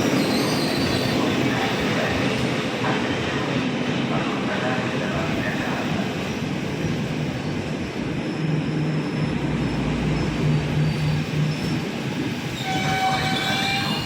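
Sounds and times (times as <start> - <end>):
train wheels squealing: 0.0 - 2.4, 8.2 - 14.0
train rumbling on tracks: 0.0 - 14.0.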